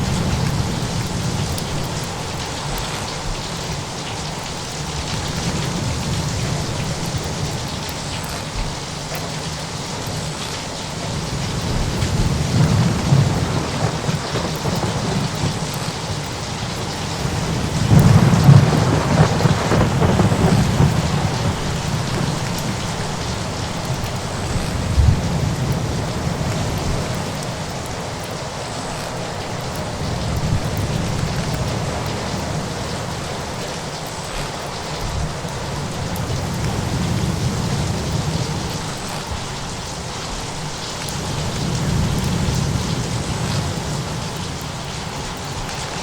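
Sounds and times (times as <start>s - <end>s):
steady rain: 0.0s - 46.0s
rolling thunder: 11.1s - 27.4s.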